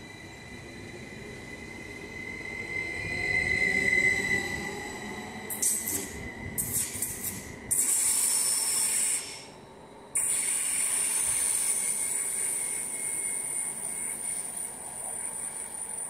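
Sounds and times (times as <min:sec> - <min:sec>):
low train rumble: 0:00.0 - 0:16.0
loud high-pitched hiss: 0:05.5 - 0:09.6, 0:10.2 - 0:15.7.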